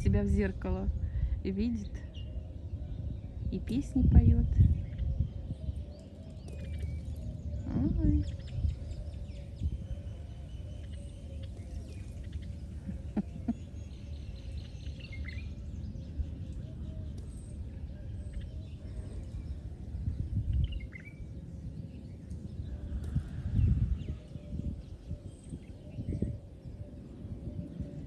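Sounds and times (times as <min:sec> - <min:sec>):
low outdoor rumble: 0:00.0 - 0:28.0
small birds chirping: 0:00.0 - 0:28.0.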